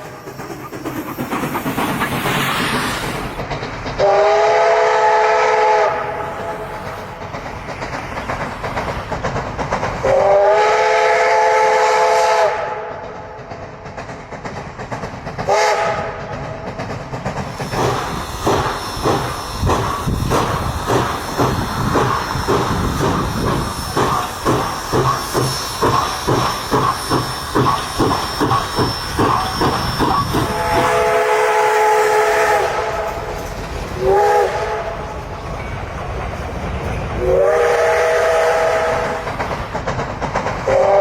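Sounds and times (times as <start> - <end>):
steam hiss: 0.0 - 41.0
steam locomotive whistle: 4.0 - 6.8, 10.0 - 13.0, 15.5 - 16.2, 22.6 - 33.4, 34.0 - 35.2, 37.2 - 39.4, 40.7 - 41.0
locomotive exhaust chuffing: 14.1 - 35.4.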